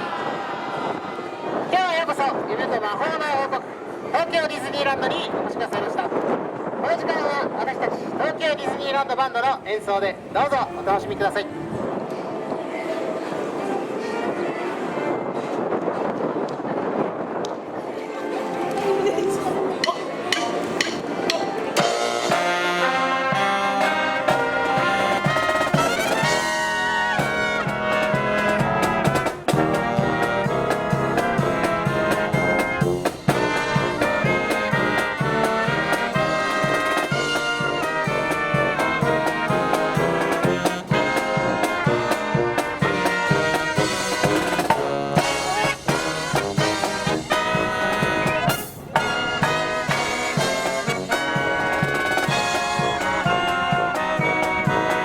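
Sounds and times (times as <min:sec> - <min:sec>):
wind buffeting microphone: 0:00.0 - 0:54.9
marching brass band playing: 0:18.0 - 0:55.0
drums: 0:19.8 - 0:55.0.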